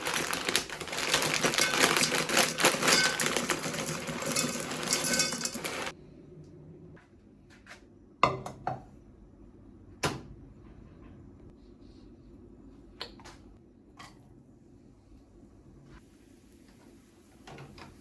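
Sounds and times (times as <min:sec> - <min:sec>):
household items knocking and clicking: 0:00.0 - 0:05.9.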